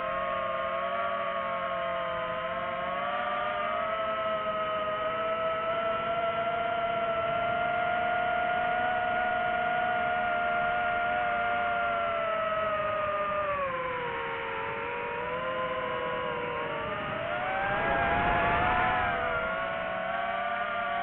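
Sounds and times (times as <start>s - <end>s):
drone propellers whining: 12.2s - 21.0s.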